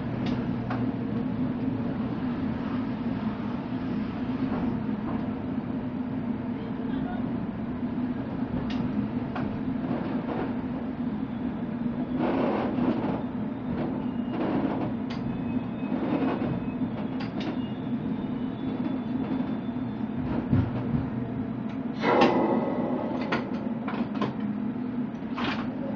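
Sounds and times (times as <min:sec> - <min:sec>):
train wheels rumbling: 0:07.3 - 0:25.9
train clattering: 0:08.5 - 0:10.9, 0:12.2 - 0:24.6.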